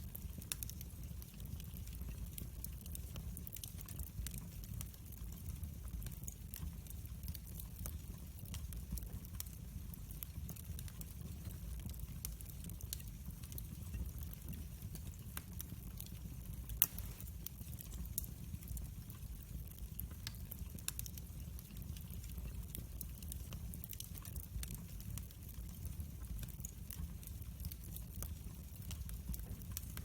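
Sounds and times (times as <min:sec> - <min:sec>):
wood fire crackling: 0:00.0 - 0:30.0
fire pop: 0:16.7 - 0:17.5.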